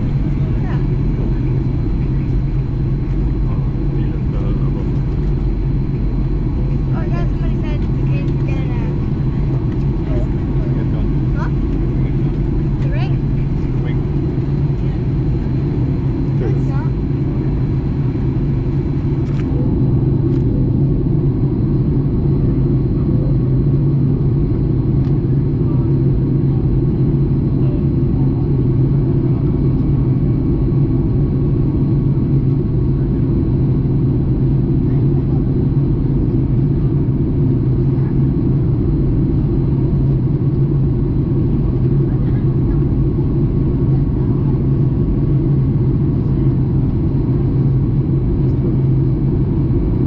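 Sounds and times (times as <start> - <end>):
airplane cabin engine rumble: 0.0 - 50.0.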